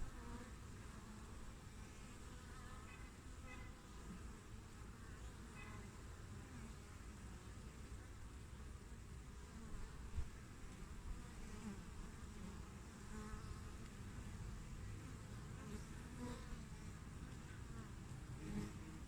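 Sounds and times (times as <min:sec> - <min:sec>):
hum of many bees: 0:00.0 - 0:19.0
single bee droning past: 0:09.4 - 0:19.0.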